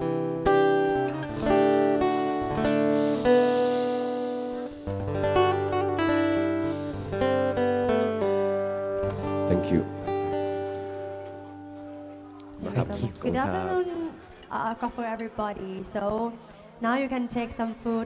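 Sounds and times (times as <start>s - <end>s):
acoustic guitar playing: 0.0s - 15.2s.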